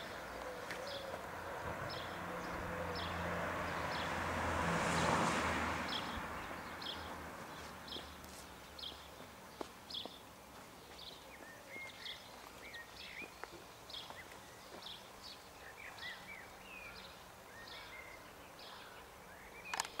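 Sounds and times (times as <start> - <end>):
birds chirping: 0.0 - 5.2, 5.8 - 20.0
faint outdoor noise: 0.0 - 20.0
sharp clicks: 19.7 - 20.0.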